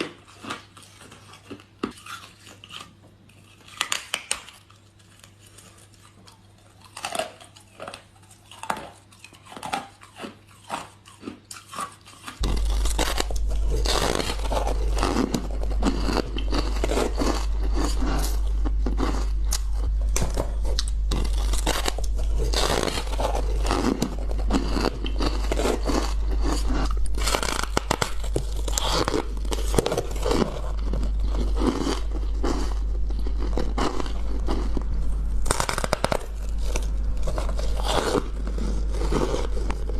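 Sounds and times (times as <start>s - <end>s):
steady low hum: 12.3s - 39.9s
ice being crunched: 12.4s - 39.9s.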